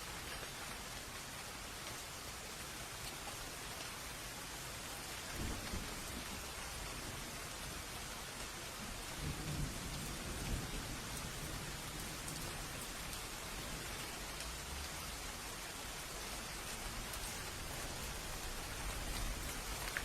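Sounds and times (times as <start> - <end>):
steady rain: 0.0 - 20.0
low rumbles of thunder: 5.4 - 7.6, 8.8 - 14.1, 16.4 - 20.0.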